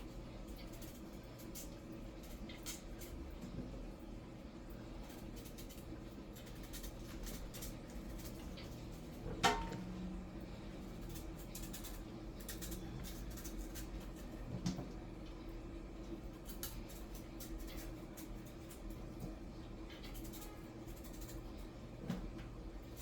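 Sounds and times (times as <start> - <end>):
steady low hum: 0.0 - 23.0
kitchen clicks and scrapes: 6.4 - 9.9.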